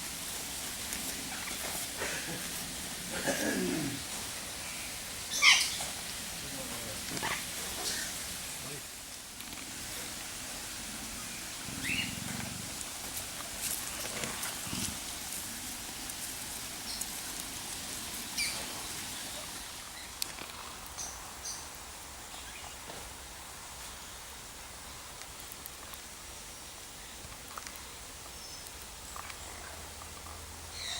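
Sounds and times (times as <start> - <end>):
steady hiss: 0.0 - 30.9
birds chirping: 3.1 - 8.8, 10.8 - 12.6, 16.7 - 20.2, 30.7 - 30.9.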